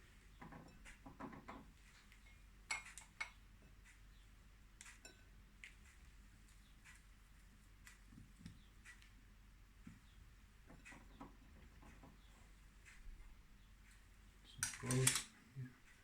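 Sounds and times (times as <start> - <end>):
kitchenware clinking on a dish: 2.2 - 3.8, 4.9 - 5.3.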